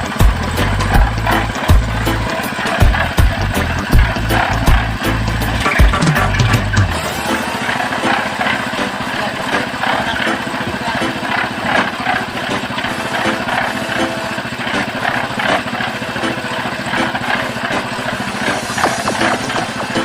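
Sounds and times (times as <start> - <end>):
engine machine rattling: 0.0 - 20.0.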